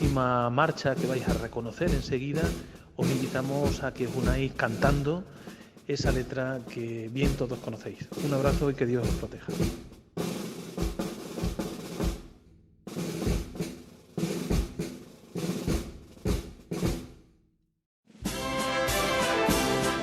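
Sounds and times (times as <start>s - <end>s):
bass drum: 0.0s - 5.4s, 6.0s - 17.3s
snare drum: 0.0s - 17.3s, 18.2s - 20.0s
brass band playing: 18.2s - 20.0s.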